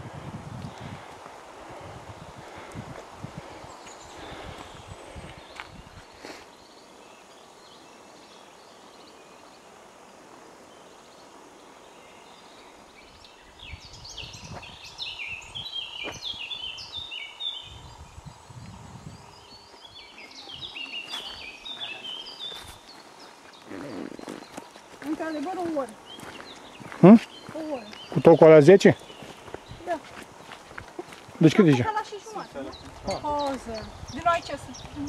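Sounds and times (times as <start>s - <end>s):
faint forest hiss: 0.0s - 35.0s
songbird singing falling notes: 13.6s - 18.8s.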